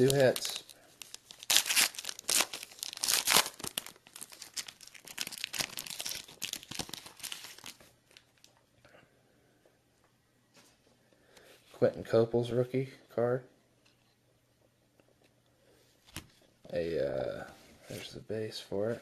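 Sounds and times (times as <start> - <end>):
packaging wrapper crinkling and tearing: 0.0 - 8.6.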